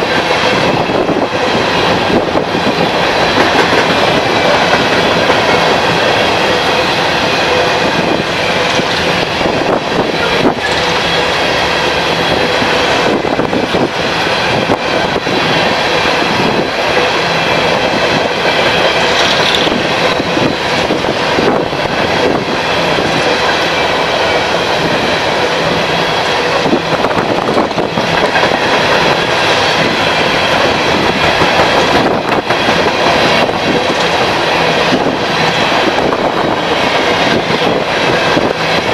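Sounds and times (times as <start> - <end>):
wheels clacking over rail joints: 0.0 - 9.3, 16.8 - 20.3, 26.4 - 38.4
train wheels rumbling on rails: 0.0 - 38.9.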